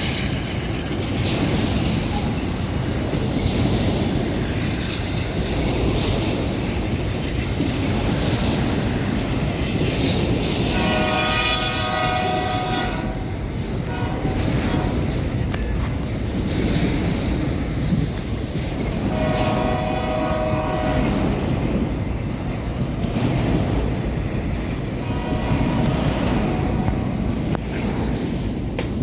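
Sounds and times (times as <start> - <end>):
train wheels rumbling on rails: 0.0 - 29.0
locomotive air horn chord: 10.7 - 15.1, 19.0 - 21.4, 25.0 - 27.0.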